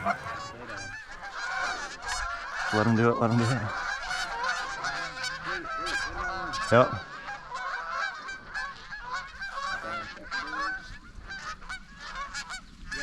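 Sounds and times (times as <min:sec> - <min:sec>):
geese honking and clucking: 0:00.0 - 0:01.0, 0:03.2 - 0:12.3.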